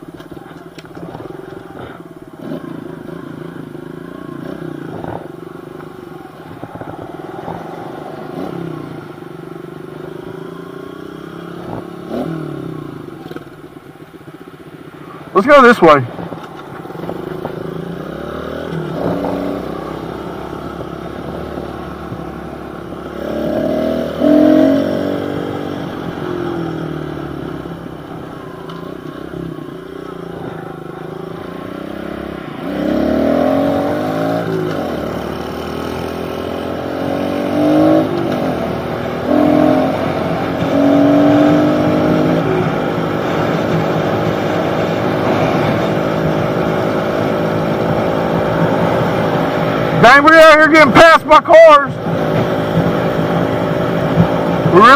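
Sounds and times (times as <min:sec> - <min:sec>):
pit bike engine revving: 0:01.0 - 0:13.6, 0:16.7 - 0:54.9.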